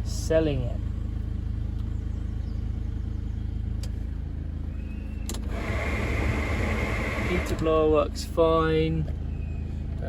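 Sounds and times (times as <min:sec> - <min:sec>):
diesel engine idling: 0:00.0 - 0:10.0
heater blower fan whirring: 0:05.3 - 0:08.0.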